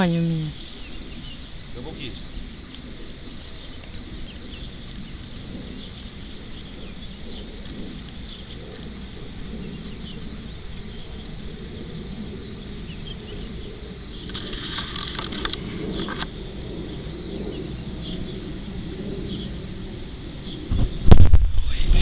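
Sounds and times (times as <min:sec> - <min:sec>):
insects chirring: 0:00.0 - 0:22.0
low rumbling noise: 0:00.0 - 0:22.0
scratchy rustling: 0:14.3 - 0:16.2.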